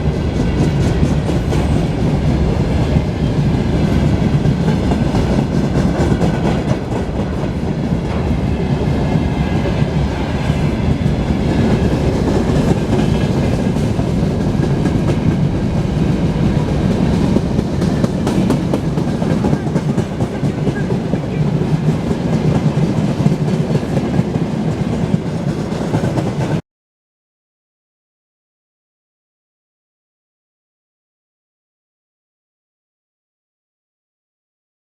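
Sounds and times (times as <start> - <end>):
freight train rumbling past: 0.0 - 26.6.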